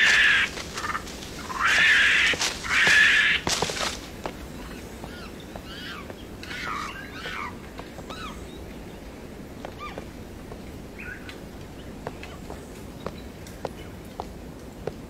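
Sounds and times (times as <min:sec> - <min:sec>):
birds chirping and whistling: 0:00.0 - 0:14.0
outdoor ambience: 0:00.0 - 0:15.0
faint clicks: 0:09.6 - 0:15.0.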